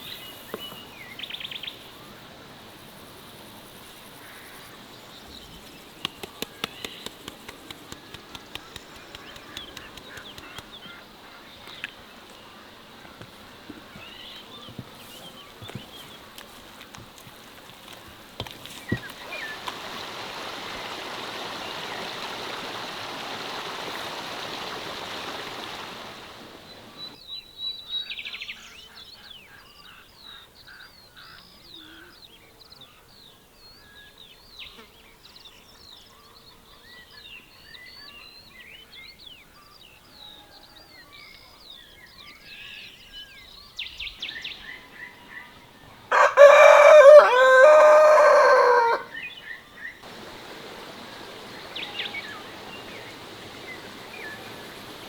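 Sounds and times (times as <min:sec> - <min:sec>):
small birds chirping: 0:00.0 - 0:02.0, 0:03.8 - 0:33.0, 0:34.1 - 0:55.0
rooster crowing: 0:46.1 - 0:49.2
steady rushing noise: 0:50.0 - 0:55.0.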